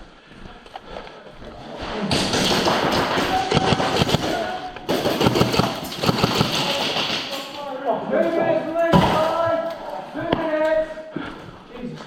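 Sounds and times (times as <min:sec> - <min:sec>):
airsoft guns firing rapidly: 0:02.0 - 0:07.6.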